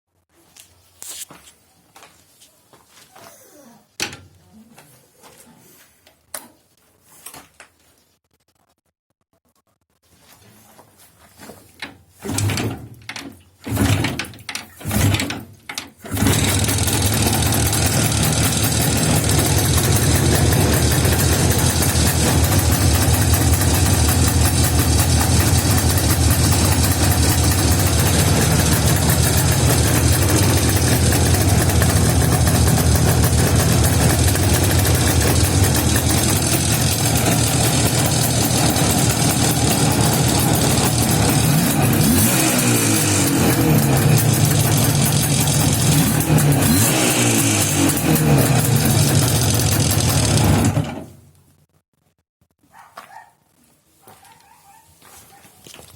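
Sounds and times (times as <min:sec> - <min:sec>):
motorcycle engine starting: 0:12.2 - 0:51.4.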